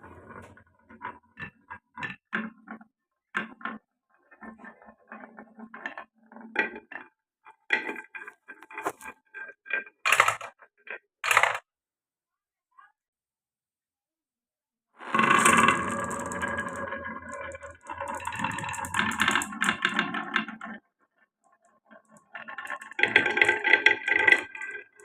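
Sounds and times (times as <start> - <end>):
marbles clicking on wooden run: 10.1 - 10.6, 11.2 - 11.6, 15.1 - 20.8
marbles clattering: 15.0 - 20.4.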